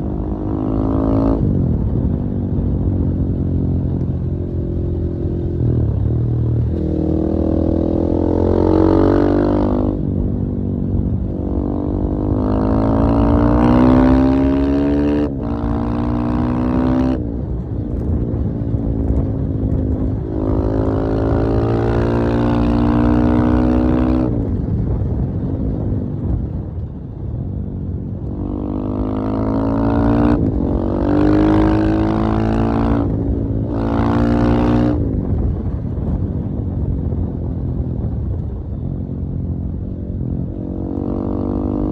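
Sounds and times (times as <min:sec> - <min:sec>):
motorcycle engine revving: 0:00.0 - 0:24.7, 0:28.2 - 0:35.6, 0:39.2 - 0:41.9.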